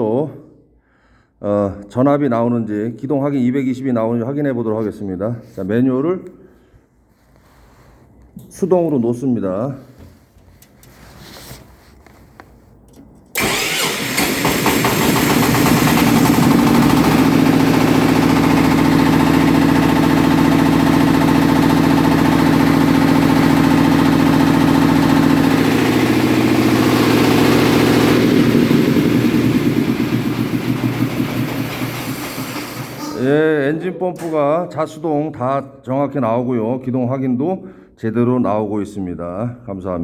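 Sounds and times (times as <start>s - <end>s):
fire pump engine running: 13.3s - 33.3s.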